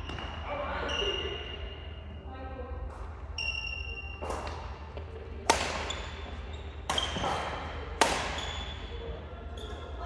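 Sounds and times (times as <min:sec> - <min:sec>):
racket hitting shuttlecock: 0:05.4 - 0:06.2, 0:06.8 - 0:08.8
shoes squeaking on court: 0:05.8 - 0:10.0.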